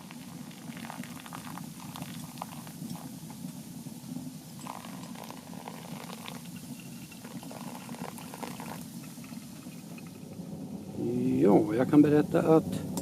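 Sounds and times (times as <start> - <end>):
steady low rumble: 9.0 - 13.0.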